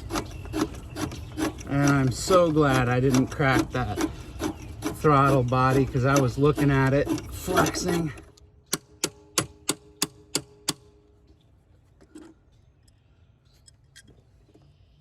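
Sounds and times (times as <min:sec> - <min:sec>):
hand tools clicking on metal: 0:00.0 - 0:10.8.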